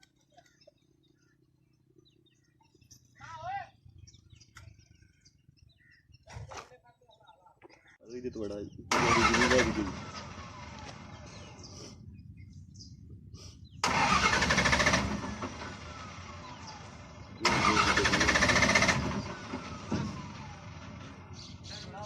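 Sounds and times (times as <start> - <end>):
heavy vehicle engine rumbling: 8.6 - 22.0.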